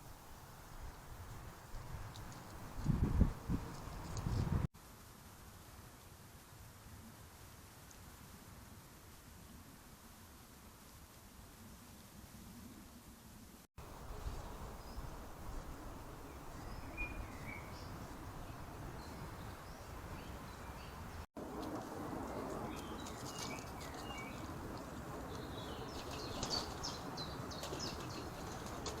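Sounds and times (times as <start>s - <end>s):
steady background hiss: 3.7s - 28.9s
small birds chirping: 13.8s - 21.3s, 22.2s - 29.0s.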